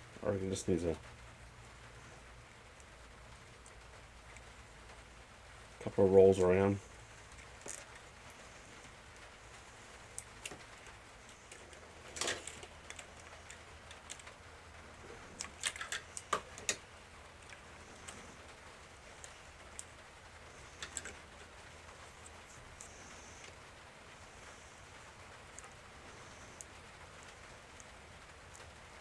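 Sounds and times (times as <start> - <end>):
insulation tape being wrapped: 7.2 - 22.9.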